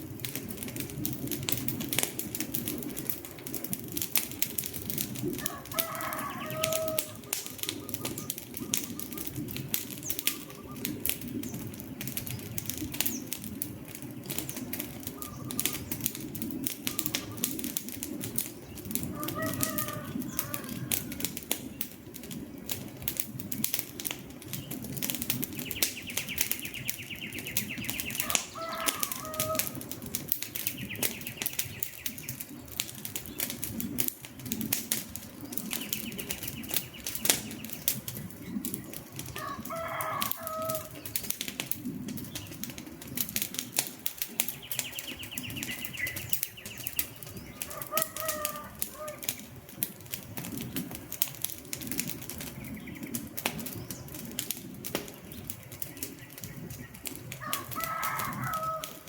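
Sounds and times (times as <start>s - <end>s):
low rush of flames: 0.0s - 59.0s
wood fire crackling: 0.0s - 59.0s
short bird calls: 5.4s - 11.0s, 15.1s - 16.0s.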